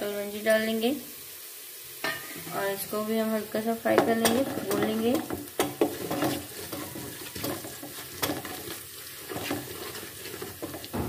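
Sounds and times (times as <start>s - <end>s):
spices sizzling in hot oil: 0.0s - 11.0s
wooden spatula scraping pan: 4.0s - 11.0s.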